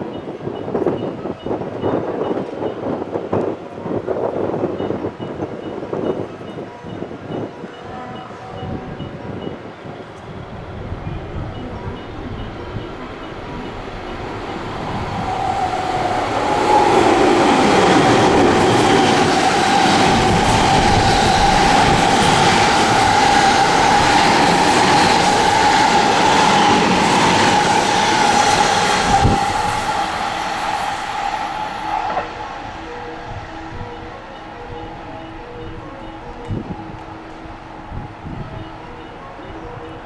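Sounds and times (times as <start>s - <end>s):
electric train passing: 8.8s - 40.0s
train wheel clatter: 11.4s - 38.7s
steady high whine: 12.2s - 39.4s.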